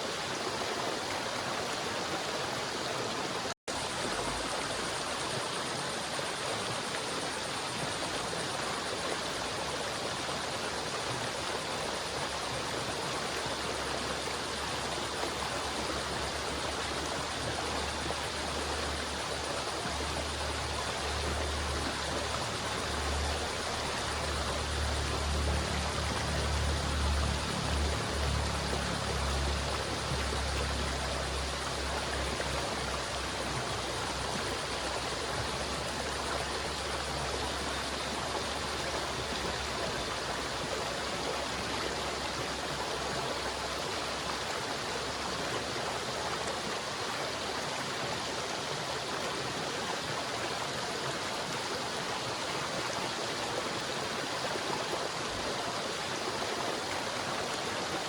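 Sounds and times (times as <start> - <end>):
river water flowing: 0.0 - 58.0.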